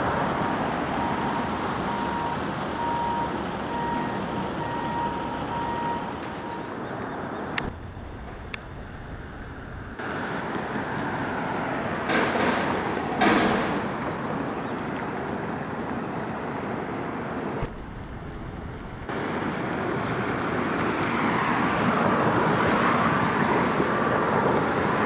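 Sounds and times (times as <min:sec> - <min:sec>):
garbage truck running: 0:00.0 - 0:15.2, 0:16.7 - 0:20.2
reversing alarm beeping: 0:00.7 - 0:06.8, 0:07.6 - 0:10.4, 0:17.6 - 0:19.6
loud air hisses: 0:07.6 - 0:10.4, 0:17.6 - 0:19.6.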